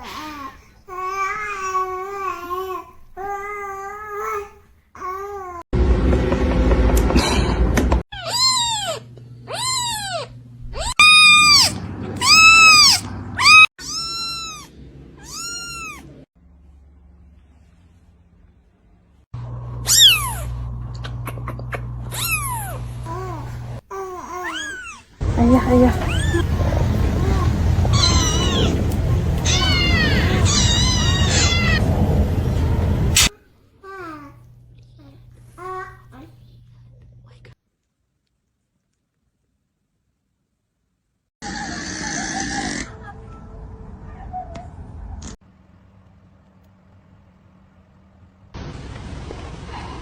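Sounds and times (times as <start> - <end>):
loud noisy sound: 5.8 - 8.0, 25.2 - 33.3
cat meowing: 8.2 - 16.2, 24.4 - 31.9
steady low rumble: 25.2 - 33.3
faint low hum: 25.2 - 39.5.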